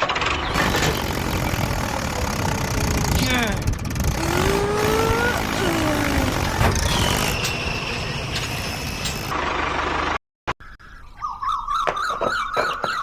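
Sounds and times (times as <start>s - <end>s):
machine noise with falling whine: 0.5s - 9.4s
birds chirping: 10.6s - 13.0s.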